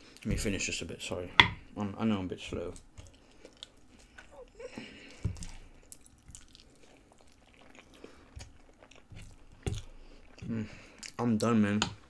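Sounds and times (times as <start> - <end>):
close chewing: 2.6 - 11.2.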